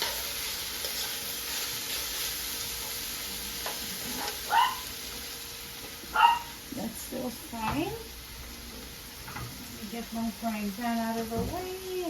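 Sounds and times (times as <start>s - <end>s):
vegetables sizzling in oil: 0.0s - 12.0s
dog barking: 4.4s - 4.9s, 6.1s - 6.6s.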